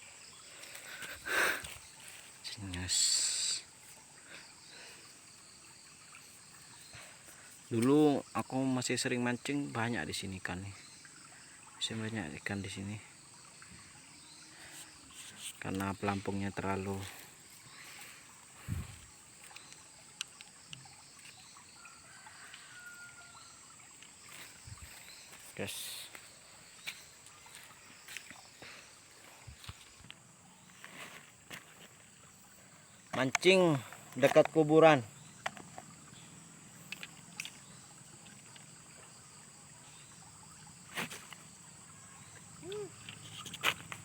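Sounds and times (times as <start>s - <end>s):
low hiss: 0.0s - 20.6s
water trickling: 0.0s - 44.0s.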